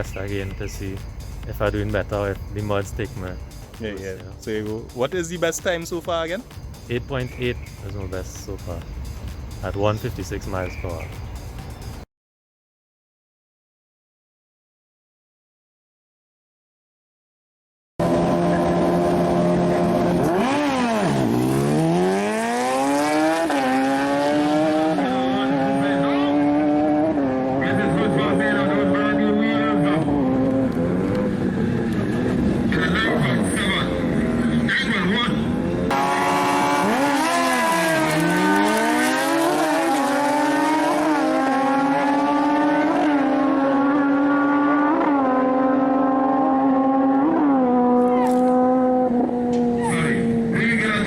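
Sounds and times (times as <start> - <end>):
high-revving engine: 18.0 - 51.0.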